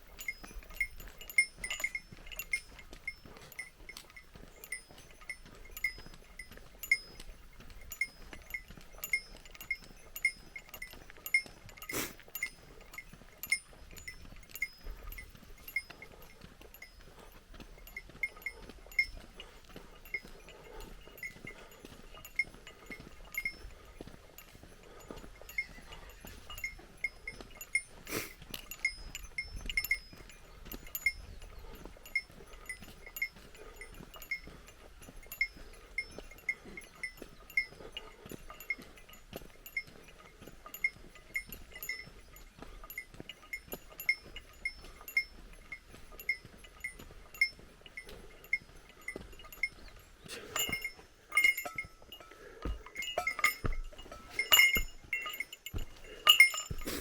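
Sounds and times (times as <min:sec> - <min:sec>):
bell jingling: 0:00.0 - 0:57.0.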